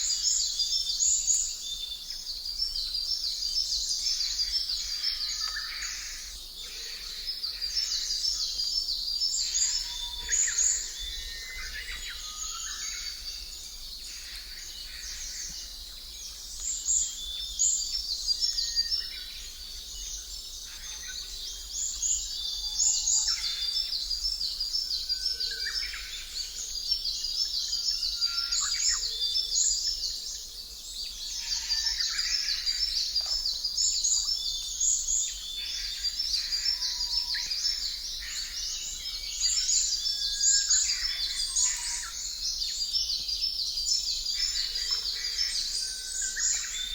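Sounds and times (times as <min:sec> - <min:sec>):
birds chirping and singing: 0:30.9 - 0:46.9.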